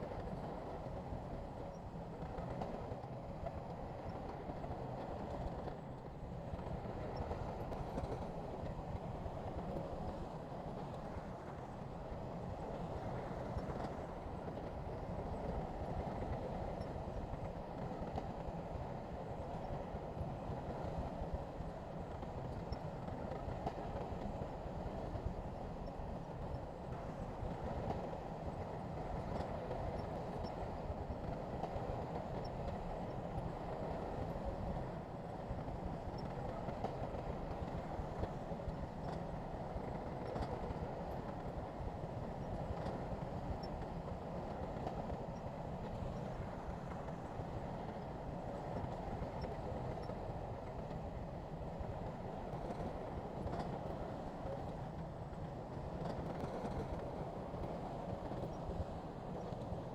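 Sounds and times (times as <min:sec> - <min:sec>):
faint clicks and clanks: 0:35.6 - 0:51.1, 0:51.8 - 0:59.8.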